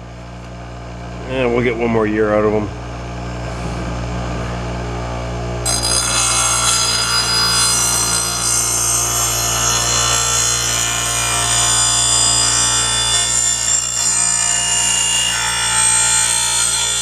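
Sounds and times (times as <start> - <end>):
electric grinder motor humming: 5.6 - 17.0
blade grinding on wheel: 5.7 - 17.0.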